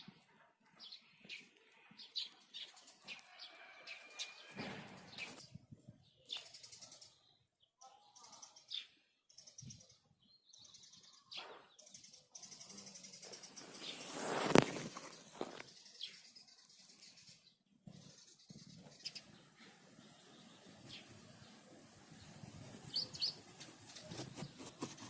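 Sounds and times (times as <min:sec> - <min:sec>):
small birds chirping: 0:00.0 - 0:25.0
rustling: 0:13.5 - 0:15.7, 0:20.8 - 0:25.0.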